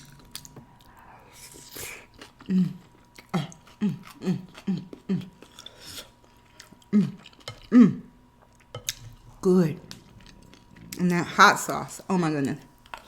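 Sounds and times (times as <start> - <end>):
person humming mm while eating: 0.7 - 6.1, 6.8 - 8.2.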